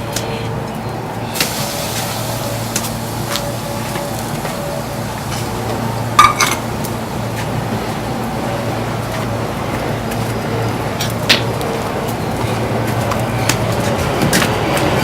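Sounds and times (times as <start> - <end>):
meat sizzling in a pan: 1.4 - 6.6.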